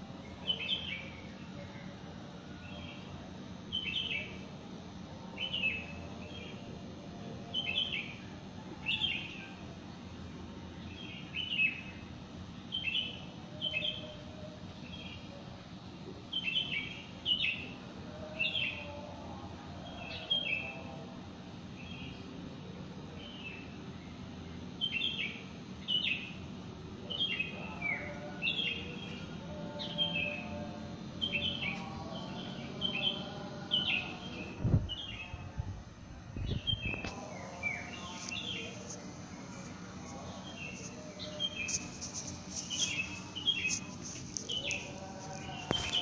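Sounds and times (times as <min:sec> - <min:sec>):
small birds chirping: 0:36.4 - 0:46.0.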